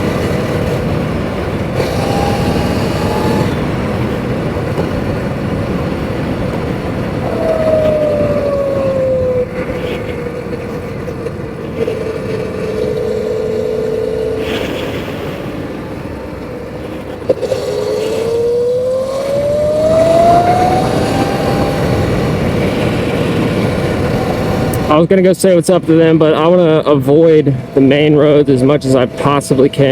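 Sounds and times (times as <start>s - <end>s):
electric motor whine: 0.0s - 5.0s, 7.1s - 10.1s, 11.7s - 15.7s, 17.0s - 24.9s
wind on microphone: 0.0s - 25.1s.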